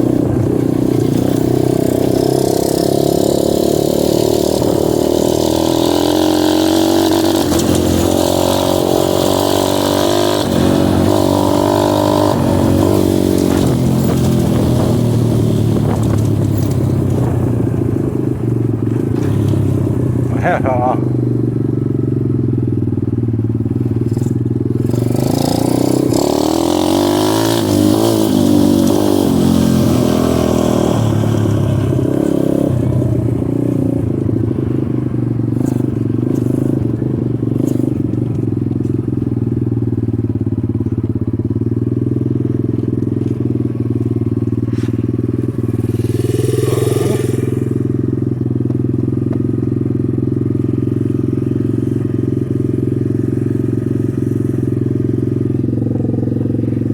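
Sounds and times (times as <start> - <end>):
second engine rising and falling: 0.0 - 21.2
dirt bike engine running: 0.0 - 56.9.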